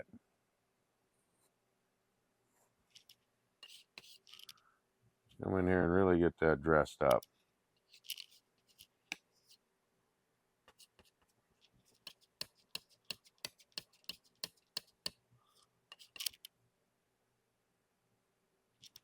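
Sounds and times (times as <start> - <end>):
short scrape: 3.6 - 4.5
painting tool tapping canvas: 12.0 - 15.2.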